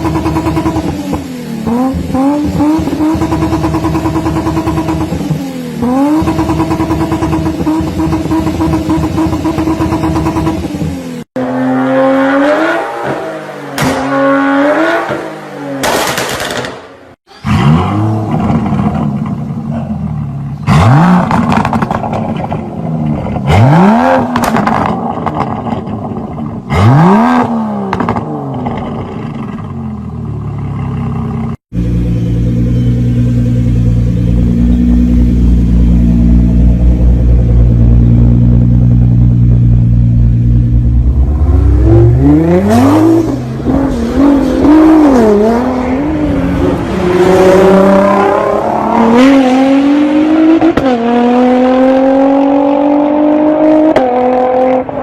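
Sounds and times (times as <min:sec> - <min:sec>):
sharp rev blips: 0:00.0 - 0:11.0
car engines revving: 0:00.0 - 0:55.0.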